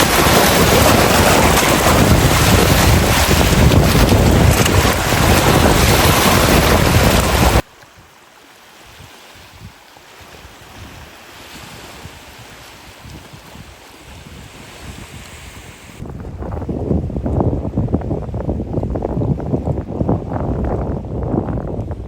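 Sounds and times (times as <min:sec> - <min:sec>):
wind buffeting microphone: 0:00.0 - 0:07.6, 0:08.9 - 0:22.0
waves washing: 0:00.0 - 0:16.0.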